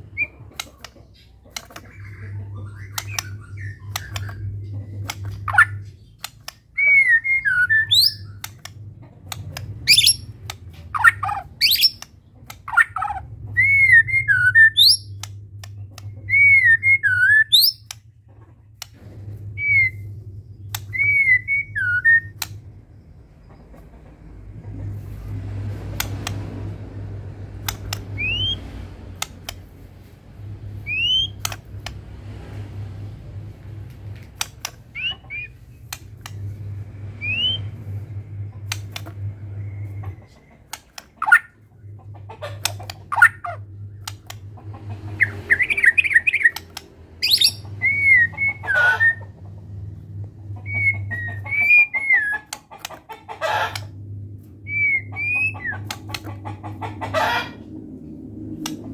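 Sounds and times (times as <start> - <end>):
low hum: 1.6 - 58.9
bird singing with whistles: 6.7 - 8.4, 9.9 - 10.3, 11.1 - 12.0, 13.6 - 15.2, 16.3 - 17.9, 20.9 - 22.4, 28.2 - 28.6, 30.9 - 31.4, 47.2 - 49.2, 54.6 - 55.6.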